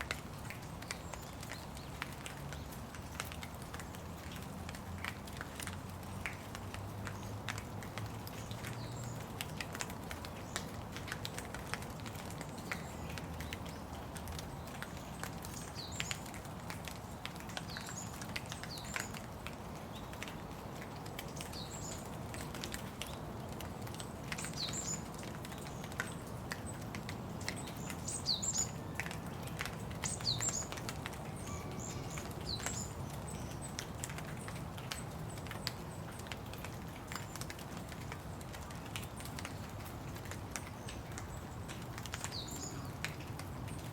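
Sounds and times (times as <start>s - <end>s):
rain pattering: 0.0s - 43.9s
bird chirping: 30.0s - 33.8s.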